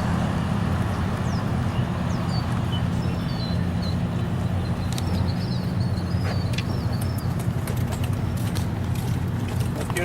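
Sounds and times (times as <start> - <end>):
low motor hum: 0.0 - 10.0
small birds chirping: 0.8 - 8.7.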